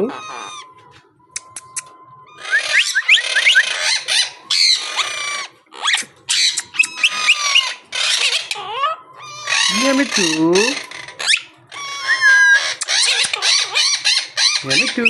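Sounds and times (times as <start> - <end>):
parakeet chattering and squawking: 0.0 - 0.8, 2.3 - 15.0
sharp clicks: 1.4 - 2.0.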